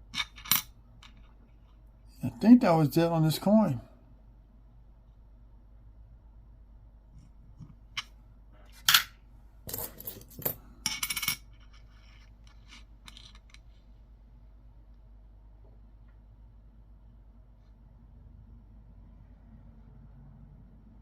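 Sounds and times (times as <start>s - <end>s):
coins clinking and clattering: 0.2s - 1.2s, 9.7s - 13.6s.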